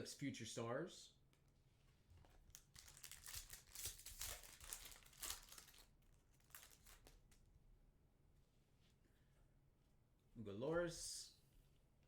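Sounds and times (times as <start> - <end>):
foil wrapper crinkling: 2.5 - 7.4.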